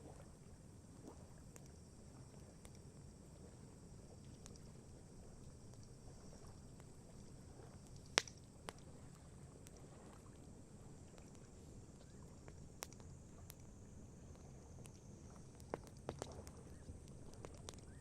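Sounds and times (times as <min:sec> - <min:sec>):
burning wood popping: 0:15.5 - 0:18.0.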